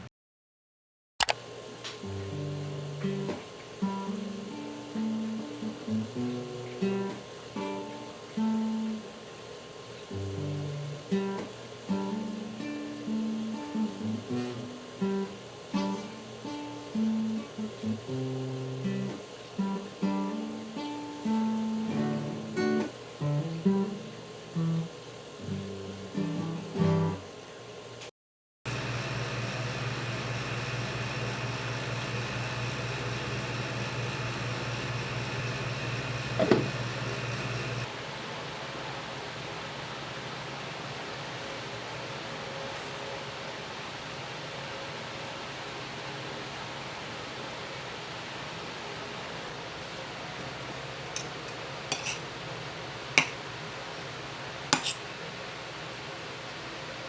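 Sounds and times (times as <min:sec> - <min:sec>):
steady background hiss: 0:01.4 - 0:28.1
low machine hum: 0:28.7 - 0:37.9
dishes and cutlery clinking: 0:51.2 - 0:52.2, 0:54.8 - 0:55.0.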